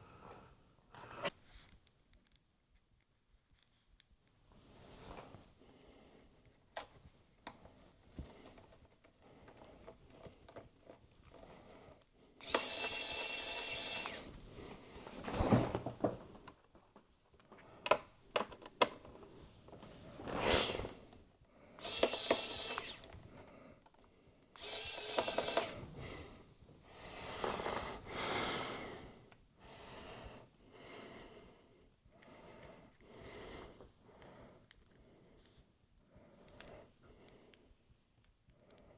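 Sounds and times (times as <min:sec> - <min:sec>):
sharp clicks: 0:12.4 - 0:14.4, 0:21.8 - 0:23.2, 0:24.6 - 0:25.9
electric screwdriver whirring: 0:12.4 - 0:14.5, 0:21.8 - 0:23.2, 0:24.6 - 0:26.1.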